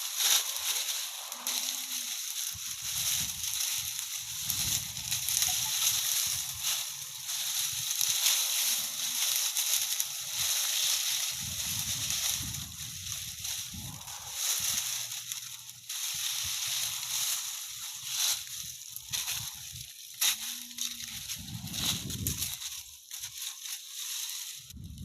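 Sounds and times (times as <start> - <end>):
dry leaves and stalks rustling: 0.0 - 25.0
low rumble on microphone: 11.3 - 17.2, 21.0 - 22.5, 24.7 - 25.0.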